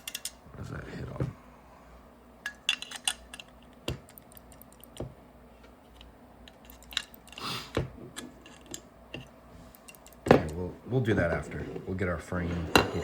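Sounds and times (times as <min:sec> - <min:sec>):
small parts clicking and tapping: 0:00.0 - 0:00.4, 0:02.4 - 0:05.1, 0:05.9 - 0:07.4, 0:08.2 - 0:10.6.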